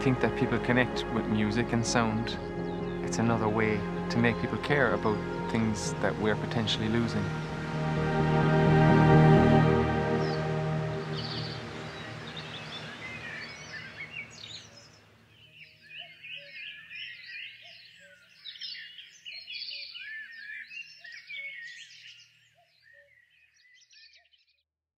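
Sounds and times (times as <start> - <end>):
songbirds chirping and trilling: 0.0 - 24.6.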